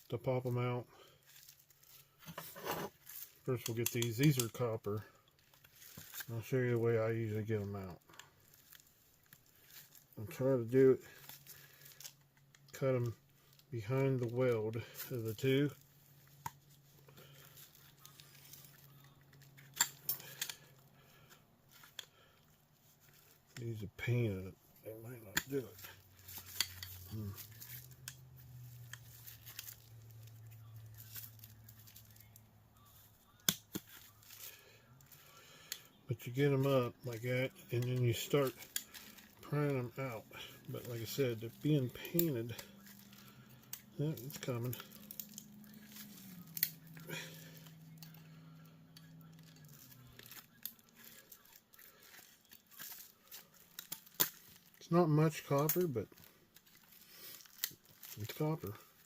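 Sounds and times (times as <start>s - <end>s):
low steady hum: 0.0s - 59.0s
tool scraping and clicking on metal: 2.3s - 3.0s.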